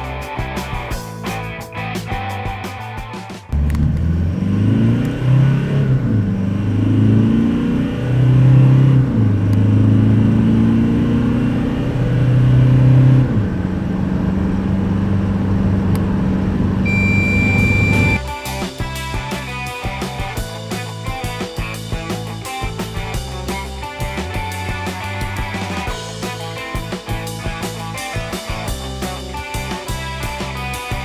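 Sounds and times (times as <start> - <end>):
diesel engine accelerating: 3.5 - 31.0
steady high beep: 16.9 - 18.2.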